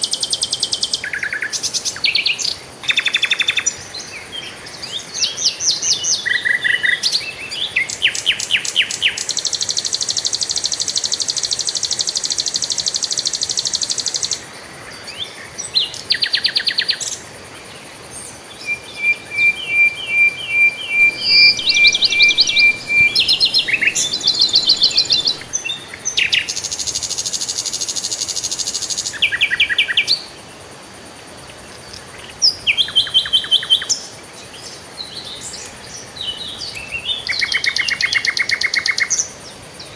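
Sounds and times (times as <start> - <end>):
songbirds singing and trilling: 18.4 - 25.8.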